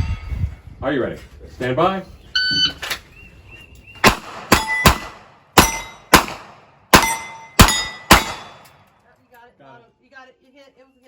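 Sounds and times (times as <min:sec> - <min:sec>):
steel plate clanging: 0:05.6 - 0:06.1, 0:07.0 - 0:08.8.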